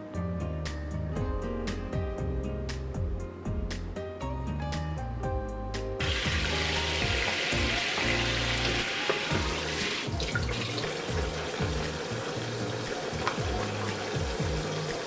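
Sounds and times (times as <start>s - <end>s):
background music with bass line: 0.0s - 15.0s
water running from a tap: 6.0s - 15.0s.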